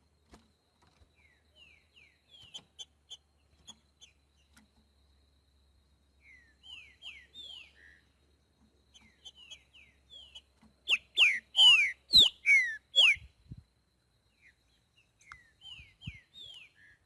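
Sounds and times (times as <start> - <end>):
bird singing whistled notes: 1.2 - 4.2, 6.2 - 8.1, 8.9 - 13.6, 14.3 - 17.0.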